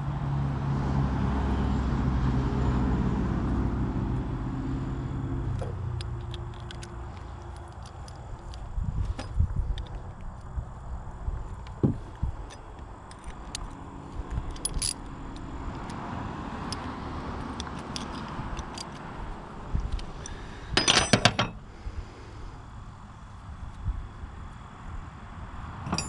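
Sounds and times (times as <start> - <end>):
jangling ringing metal: 14.5 - 15.1, 17.7 - 19.0, 20.2 - 21.6
metal hand tools clinking: 14.5 - 15.1, 20.2 - 21.6.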